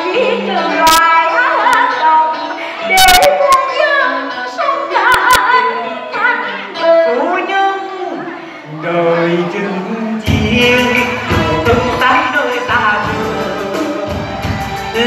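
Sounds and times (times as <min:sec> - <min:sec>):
woman singing with vibrato: 0:00.0 - 0:15.0
instrumental accompaniment: 0:08.8 - 0:15.0
sharp percussion strikes: 0:10.3 - 0:15.0.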